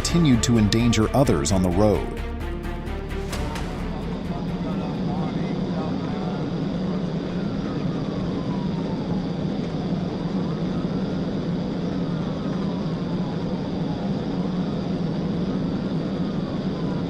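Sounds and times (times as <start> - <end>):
police siren wailing: 3.6 - 15.0.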